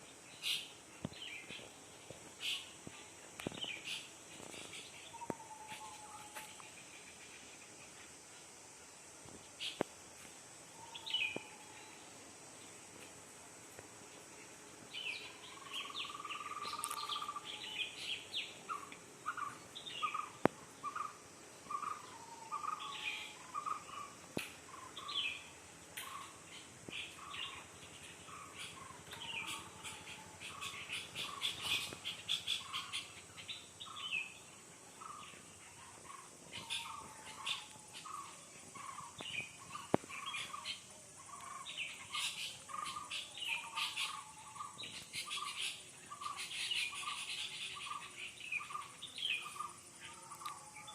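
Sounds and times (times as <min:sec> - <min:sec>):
birds chirping: 0:00.0 - 0:08.6, 0:14.0 - 0:50.9.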